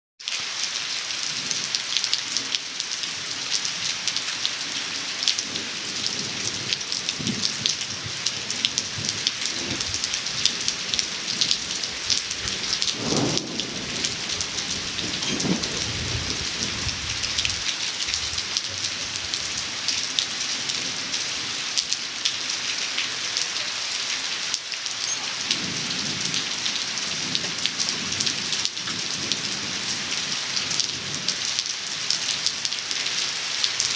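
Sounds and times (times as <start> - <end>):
rain splashing on cement: 0.2 - 33.9
low rumbles: 12.0 - 19.6.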